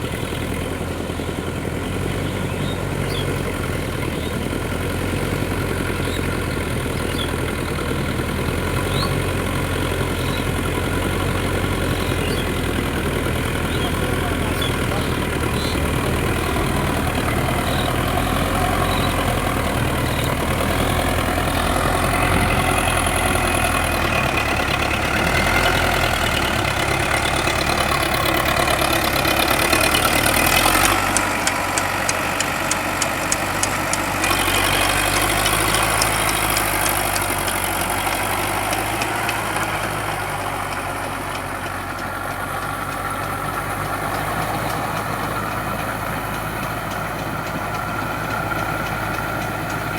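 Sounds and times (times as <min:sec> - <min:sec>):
tractor diesel engine running: 0:00.0 - 0:49.9
rapid ticking: 0:10.5 - 0:49.9.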